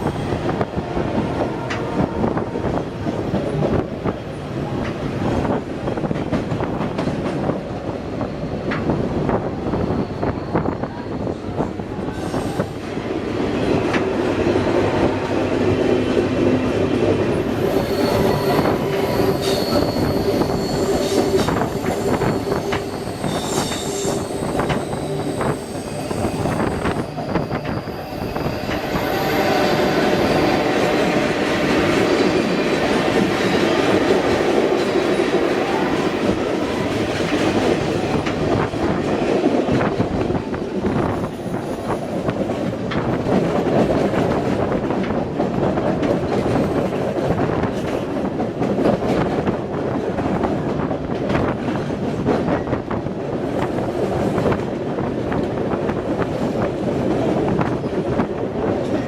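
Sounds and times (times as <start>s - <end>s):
train rumbling on rails: 0.0s - 59.0s
high-pitched wheel squeal: 17.5s - 31.2s.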